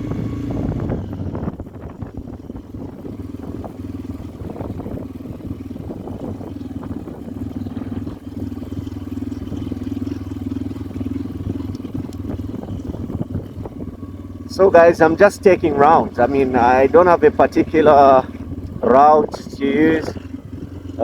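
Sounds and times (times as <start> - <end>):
motorcycle engine cruising: 0.0 - 21.0.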